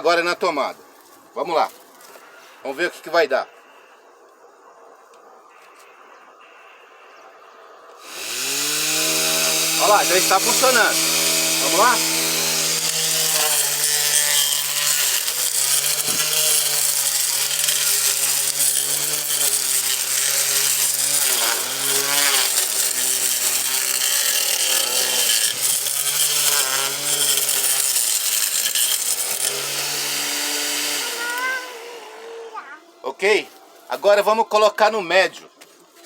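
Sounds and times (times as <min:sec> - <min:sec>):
blender motor whining: 0:08.0 - 0:32.5.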